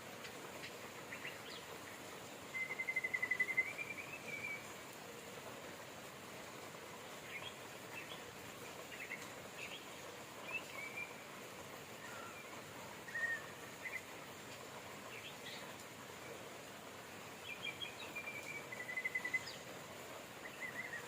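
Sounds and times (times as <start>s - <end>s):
steady hiss of rain: 0.0s - 21.0s
small birds chirping: 0.1s - 4.8s, 7.0s - 11.3s, 12.0s - 16.5s, 17.2s - 19.7s, 20.4s - 21.0s.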